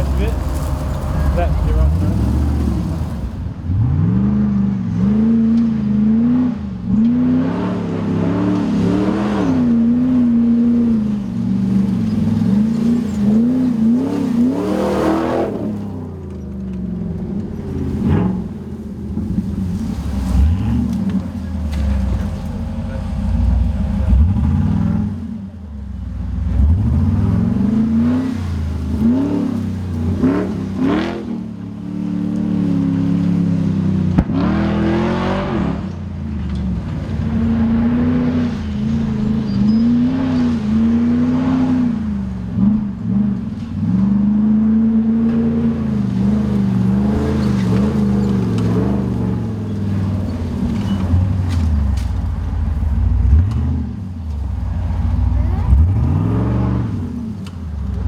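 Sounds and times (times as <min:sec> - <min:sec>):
engine revving hard: 0:00.0 - 0:16.0, 0:17.8 - 0:25.2, 0:26.5 - 0:31.4, 0:34.2 - 0:35.9, 0:55.3 - 0:57.3.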